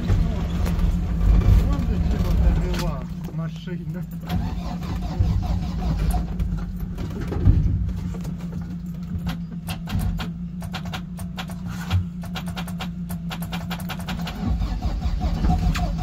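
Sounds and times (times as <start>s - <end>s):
vehicle engine idling: 0.0s - 16.0s
irregular sharp clicks: 12.2s - 14.4s.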